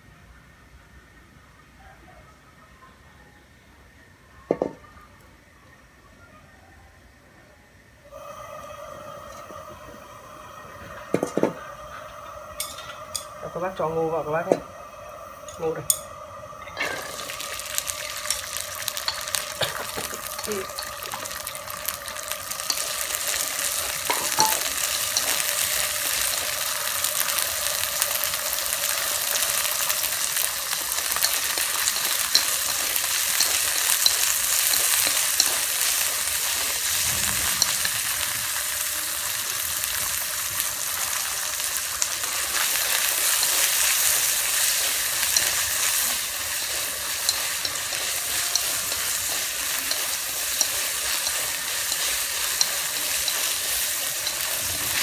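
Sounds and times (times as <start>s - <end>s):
corn sizzling in hot oil: 8.0s - 55.0s
chopsticks stirring in wok: 15.4s - 55.0s.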